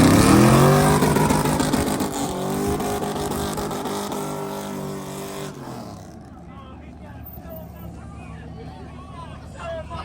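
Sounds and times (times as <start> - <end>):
truck engine revving: 0.0 - 6.2.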